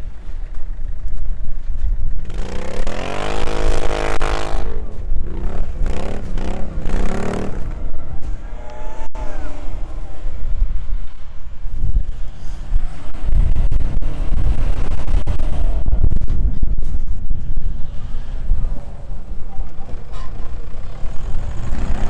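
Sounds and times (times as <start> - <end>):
steady low rumble: 0.0 - 19.6
engine revving: 2.2 - 10.2, 20.6 - 22.0.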